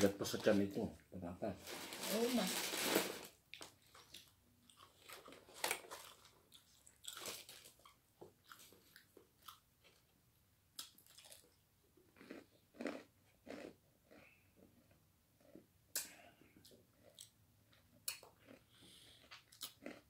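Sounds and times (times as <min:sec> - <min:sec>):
chewing and biting food: 0:03.5 - 0:10.1, 0:10.8 - 0:15.7, 0:16.6 - 0:20.0.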